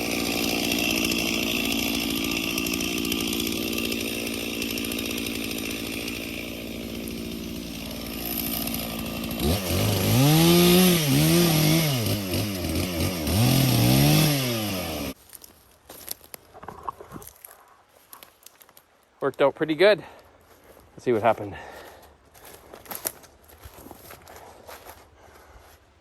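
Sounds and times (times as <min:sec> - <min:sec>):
chainsaw engine revving: 0:00.0 - 0:15.2.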